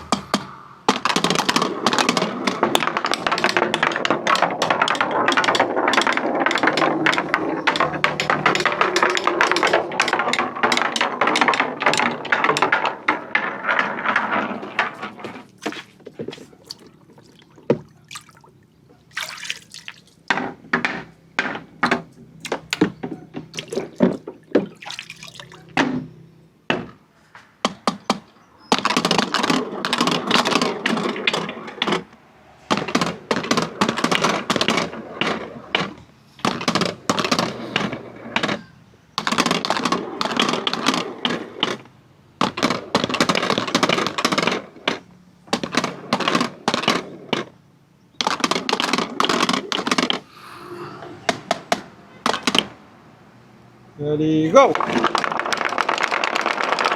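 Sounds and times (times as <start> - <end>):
marbles rolling on wooden run: 0.9 - 17.8, 54.5 - 56.9.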